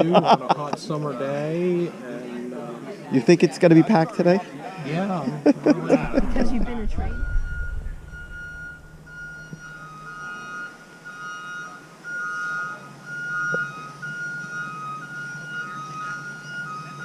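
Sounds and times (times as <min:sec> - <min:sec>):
low engine hum: 0:06.0 - 0:10.2
hi-lo siren: 0:06.0 - 0:11.8.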